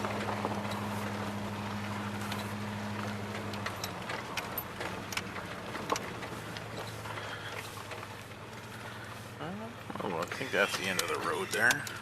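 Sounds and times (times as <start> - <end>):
pickup engine droning: 0.0 - 12.0
knocks and rattles: 2.2 - 8.8.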